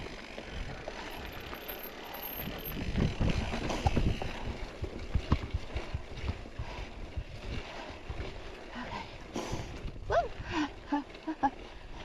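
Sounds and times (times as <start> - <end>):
mountain bike rolling on dirt: 0.0 - 12.0
wind on microphone: 2.4 - 8.3
bike knocks and clatter: 2.7 - 4.4, 5.0 - 6.4.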